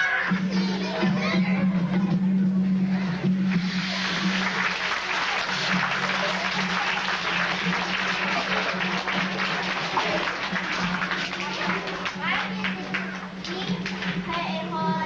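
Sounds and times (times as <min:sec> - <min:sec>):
audience applauding: 0:03.5 - 0:14.2.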